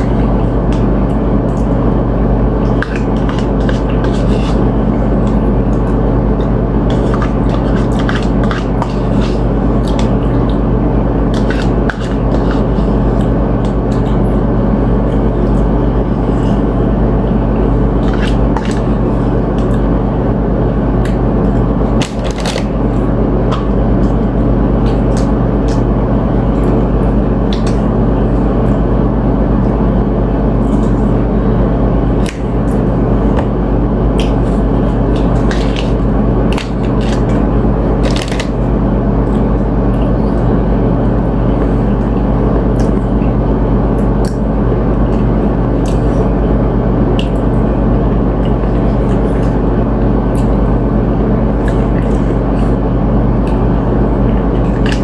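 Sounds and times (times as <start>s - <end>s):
food chewing: 0.0s - 29.8s, 30.4s - 46.4s, 47.1s - 50.8s, 51.5s - 55.0s
loud steady background hum: 0.0s - 55.0s
chips crunching: 21.0s - 24.2s, 34.2s - 38.7s.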